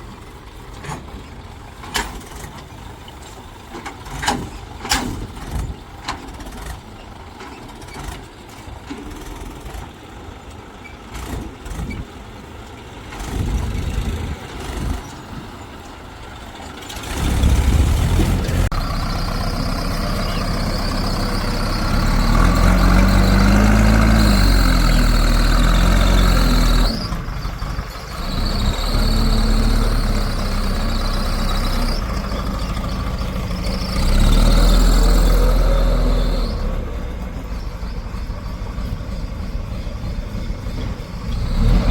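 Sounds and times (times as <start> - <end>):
diesel engine labouring: 0.0 - 41.9
knocks and clanks: 0.7 - 6.8.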